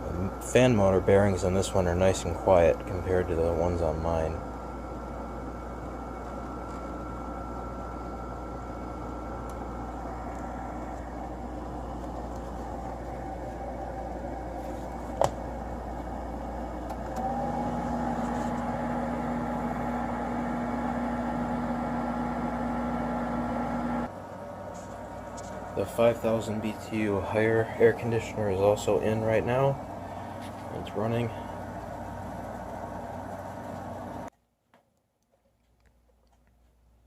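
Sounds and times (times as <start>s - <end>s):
air conditioner fan blowing: 0.0s - 34.3s
steady low hum: 0.0s - 34.3s
air conditioner click: 8.6s - 13.9s, 16.8s - 19.4s.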